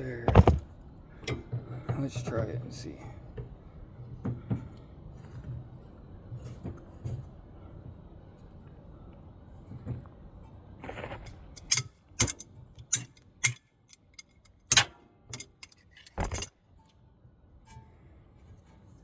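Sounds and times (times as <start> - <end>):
metallic clinks of tools: 11.3 - 16.5.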